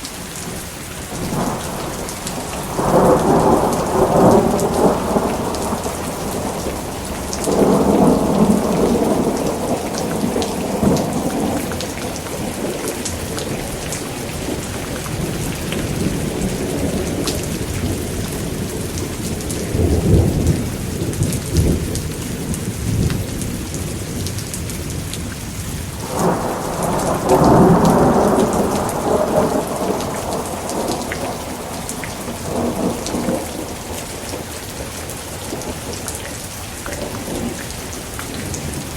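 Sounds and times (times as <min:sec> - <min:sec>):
pouring rain: 0:00.0 - 0:38.9
thunder rumbling: 0:01.1 - 0:25.3, 0:25.9 - 0:38.9.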